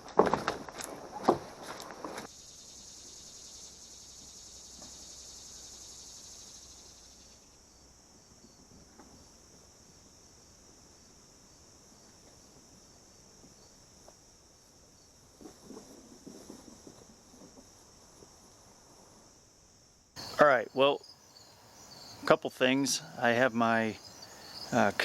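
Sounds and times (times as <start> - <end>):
insects trilling: 0.0 - 25.0
faint chirps: 20.2 - 25.0.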